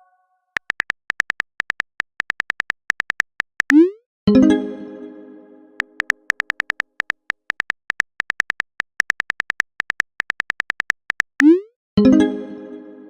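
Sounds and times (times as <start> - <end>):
phone keyboard typing clicks: 0.6 - 3.9, 5.8 - 11.6.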